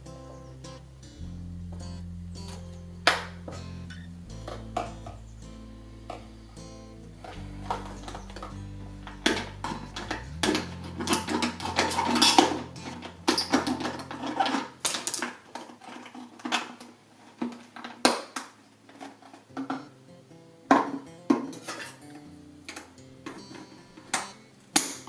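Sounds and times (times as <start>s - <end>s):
background music: 0.0s - 15.1s
hard objects clattering and clicking: 9.2s - 19.9s.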